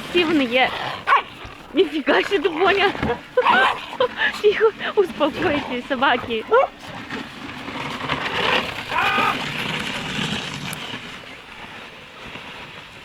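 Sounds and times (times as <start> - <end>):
dogs scuffling: 0.0 - 12.9
dog high cry: 1.0 - 4.4, 8.8 - 9.5.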